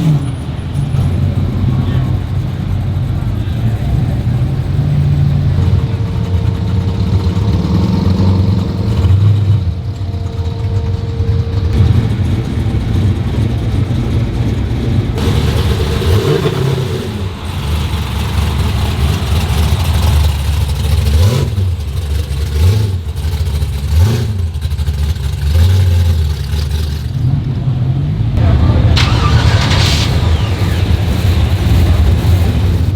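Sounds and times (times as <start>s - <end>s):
car engine rumbling and revving: 0.0s - 32.9s.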